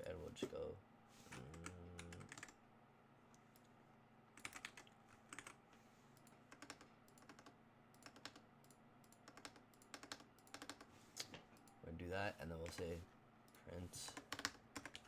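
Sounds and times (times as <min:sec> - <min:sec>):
computer keyboard typing: 0:01.5 - 0:02.6, 0:04.4 - 0:05.6, 0:06.2 - 0:10.9, 0:14.0 - 0:15.0.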